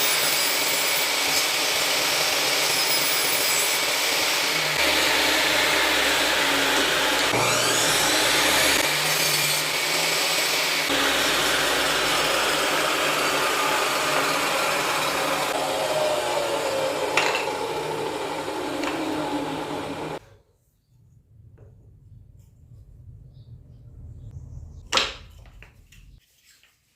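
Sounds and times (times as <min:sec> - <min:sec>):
electric power tool on wood: 0:00.0 - 0:20.2.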